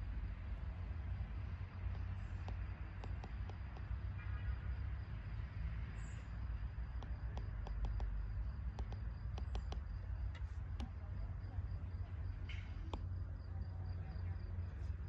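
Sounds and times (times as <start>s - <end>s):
faint clicks and taps: 1.8s - 4.2s, 6.8s - 11.2s, 12.2s - 13.3s.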